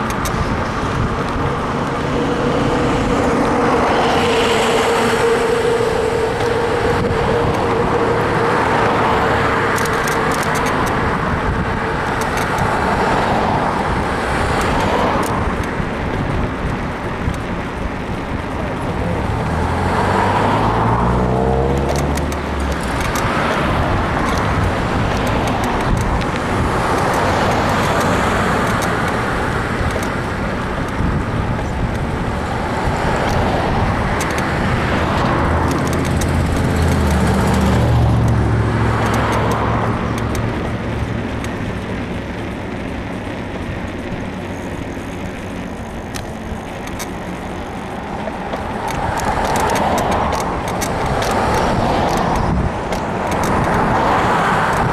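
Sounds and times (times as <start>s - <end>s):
bicycle suspension creaking: 0.0s - 54.9s
cars passing: 0.0s - 54.9s
deep engine hum: 0.0s - 54.9s.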